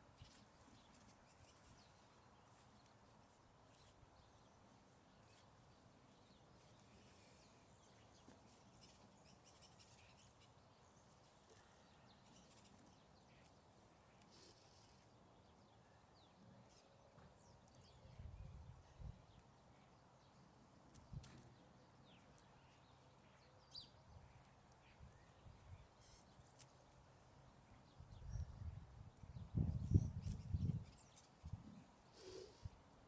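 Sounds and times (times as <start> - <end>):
small high ticks and chirps: 5.2 - 15.1, 20.8 - 27.0, 27.7 - 32.6.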